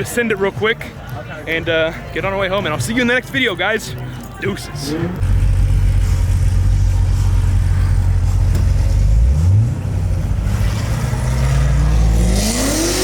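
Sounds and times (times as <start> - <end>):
car engine revving and accelerating: 4.8 - 13.0.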